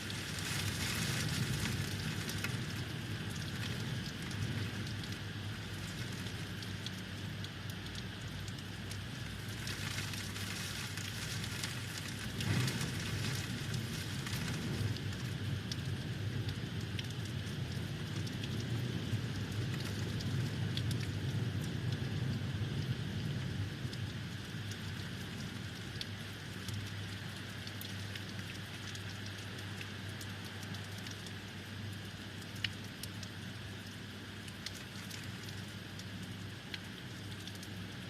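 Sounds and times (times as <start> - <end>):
low wind rumble: 0.0 - 7.7, 8.8 - 27.8
heavy rain falling: 0.0 - 31.2.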